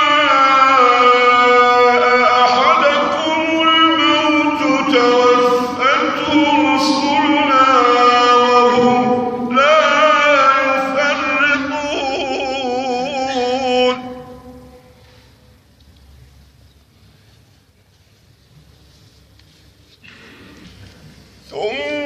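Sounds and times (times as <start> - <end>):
man reciting melodically: 0.0 - 15.2, 21.3 - 22.0.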